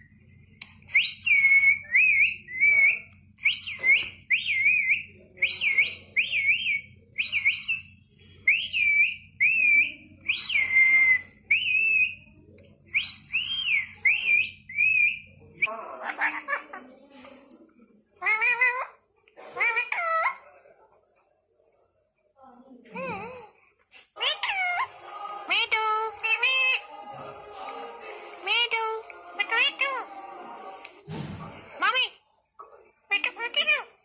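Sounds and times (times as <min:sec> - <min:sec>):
parakeet whistling: 0:00.9 - 0:12.3, 0:13.0 - 0:15.3, 0:24.2 - 0:26.8.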